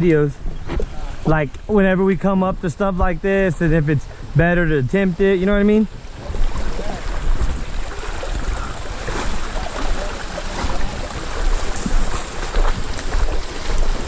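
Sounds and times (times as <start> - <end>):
river water rushing: 3.6 - 14.0.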